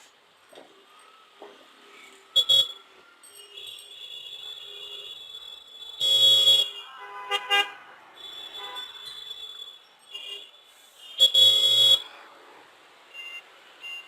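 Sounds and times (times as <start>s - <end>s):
vehicle horns honking: 2.4s - 2.8s, 3.5s - 12.1s.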